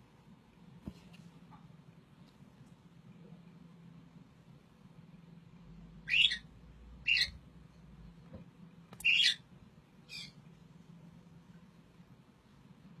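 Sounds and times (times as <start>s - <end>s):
bird calling: 6.0s - 7.4s, 9.0s - 9.4s.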